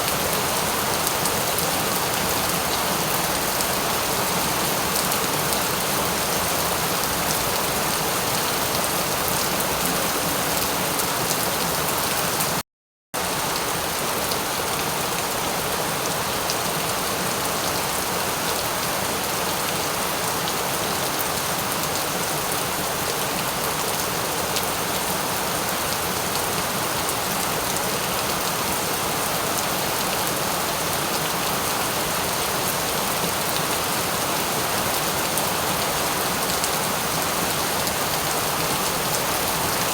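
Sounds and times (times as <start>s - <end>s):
heavy rain falling: 0.0s - 12.6s.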